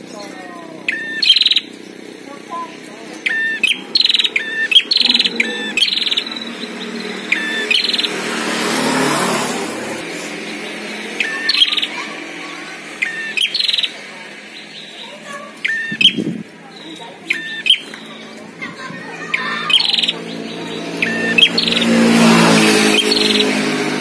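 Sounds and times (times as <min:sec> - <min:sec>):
broad rush of noise: 0:00.0 - 0:24.0
bird chirp bursts: 0:00.8 - 0:02.1, 0:03.2 - 0:18.3, 0:19.2 - 0:23.8.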